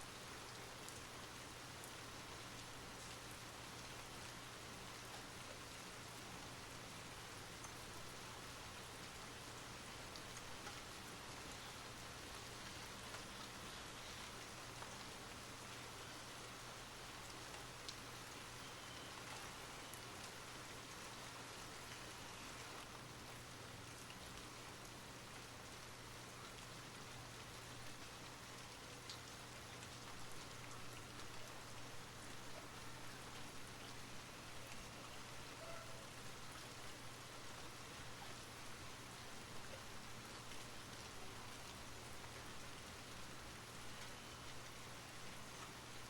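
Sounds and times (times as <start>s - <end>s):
steady rain falling: 0.0s - 46.0s
single raindrops pattering: 9.8s - 37.6s.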